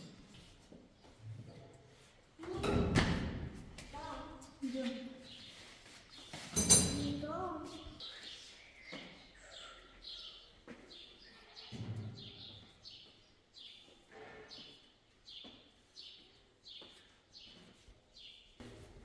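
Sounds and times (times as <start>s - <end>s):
bird chirping: 7.8s - 14.0s.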